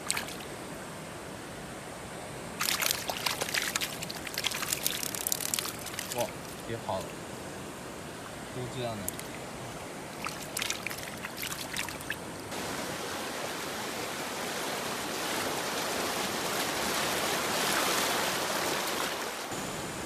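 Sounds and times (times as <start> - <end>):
short splashes: 0.0 - 0.4, 2.6 - 6.6, 10.1 - 12.2
water rushing into ditch: 2.6 - 7.1, 9.0 - 19.6.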